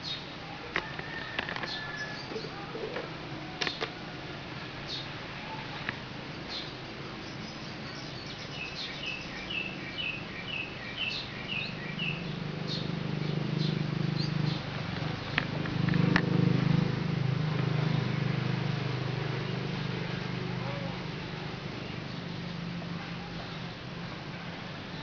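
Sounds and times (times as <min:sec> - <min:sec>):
bird chirping: 0:04.8 - 0:16.1.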